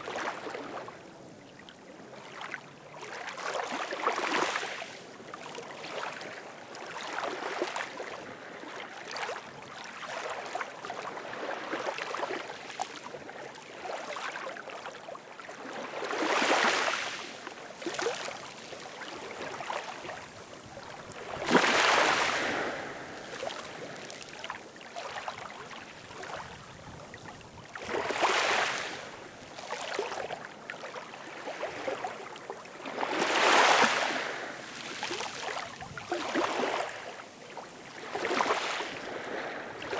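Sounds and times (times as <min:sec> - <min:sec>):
ocean waves washing ashore: 0:15.6 - 0:39.9.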